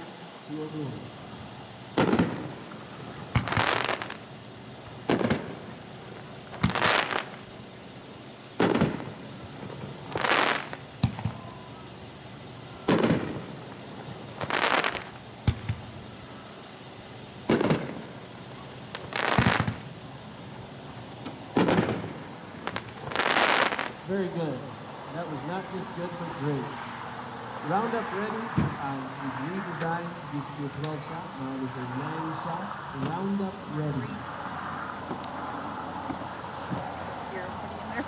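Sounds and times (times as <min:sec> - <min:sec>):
firework shell crackling burst: 0:00.0 - 0:38.0
firework launch thump: 0:02.0 - 0:02.5, 0:14.6 - 0:15.9, 0:17.5 - 0:18.0, 0:19.3 - 0:19.9, 0:21.2 - 0:23.8, 0:28.4 - 0:28.9.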